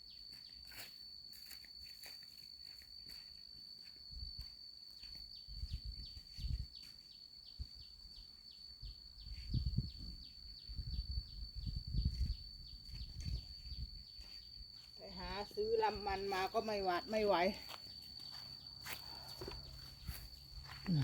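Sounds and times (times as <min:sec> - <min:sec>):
wind buffeting microphone: 0:09.2 - 0:14.1.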